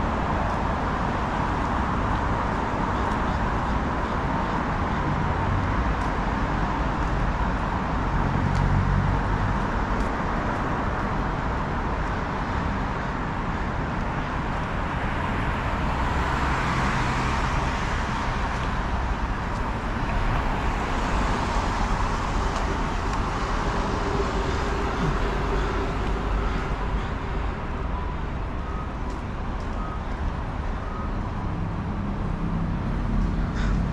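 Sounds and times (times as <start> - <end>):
cars passing by: 0.0 - 33.9
traffic rumble: 0.0 - 33.9.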